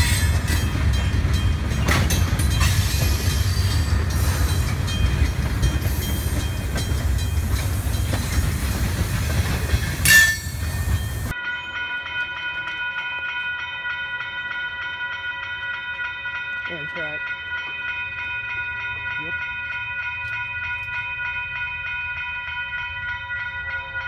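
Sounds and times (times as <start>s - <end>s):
wheels clicking over rail joints: 0.0s - 11.3s
freight train rumbling: 0.0s - 11.4s
railroad crossing bell ringing: 0.0s - 24.0s
high wheel squeal: 9.8s - 11.3s.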